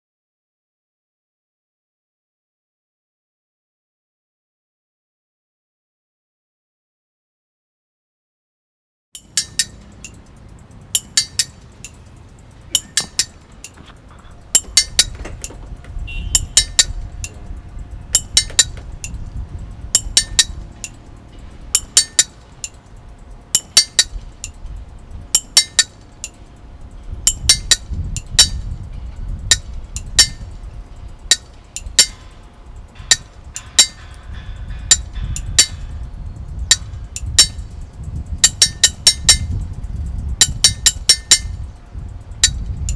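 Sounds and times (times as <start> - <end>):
sharp bright clinks: 9.2 - 42.9
low rumble: 9.8 - 25.6.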